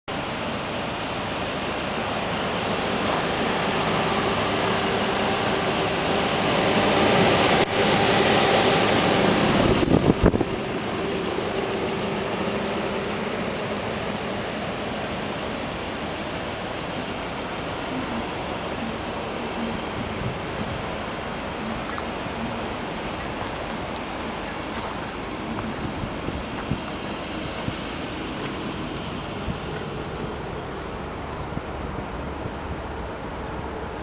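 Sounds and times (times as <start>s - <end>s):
car engine idling: 0.1s - 34.0s
electric cooling fan running: 1.8s - 17.0s.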